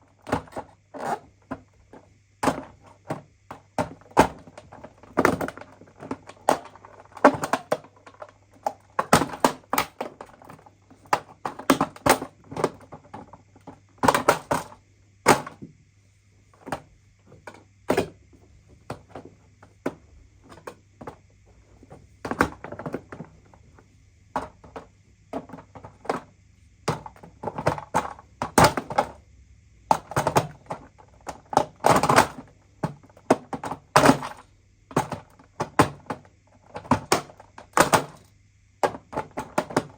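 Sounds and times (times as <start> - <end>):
steady low hum: 0.0 - 31.6.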